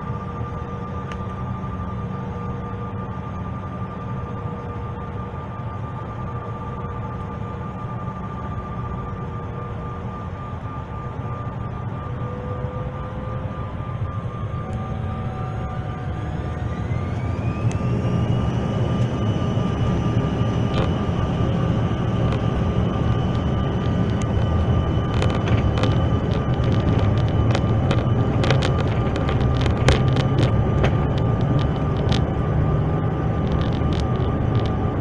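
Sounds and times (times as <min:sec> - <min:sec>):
loud cabin rumble: 0:11.8 - 0:35.0
jet engines spooling up: 0:13.6 - 0:35.0.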